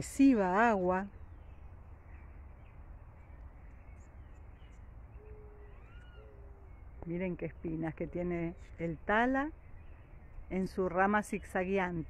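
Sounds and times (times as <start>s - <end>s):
faint outdoor background noise: 0.0s - 12.0s
faint higher bird notes: 3.7s - 7.1s
bird giving low calls: 3.8s - 10.5s.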